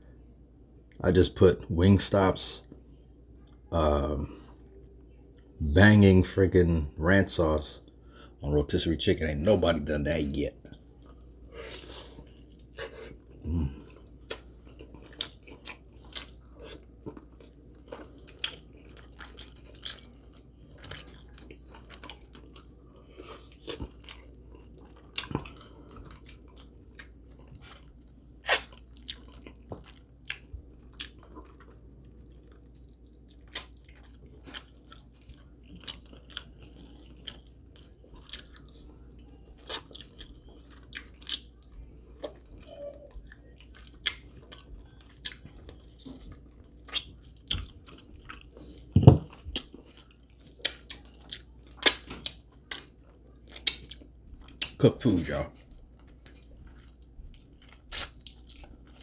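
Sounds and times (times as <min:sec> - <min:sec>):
man chewing food: 0:10.6 - 0:54.8, 0:55.6 - 0:59.0.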